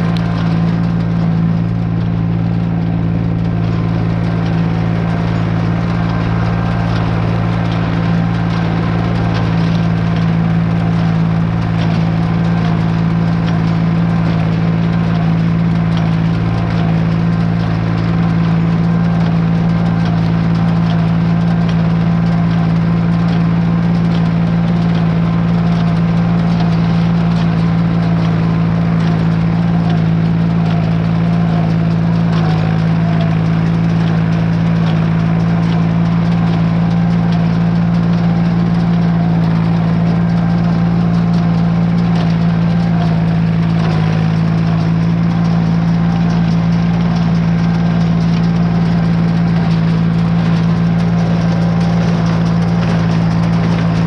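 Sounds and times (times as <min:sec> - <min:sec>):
hay baler running: 0:00.0 - 0:54.0
tractor engine running steadily: 0:00.0 - 0:54.0.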